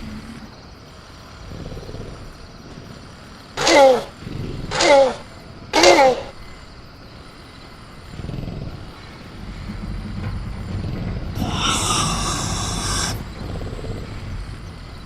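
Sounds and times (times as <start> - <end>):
harsh hissing burst: 0.0 - 15.0
creature growling low: 8.1 - 14.6.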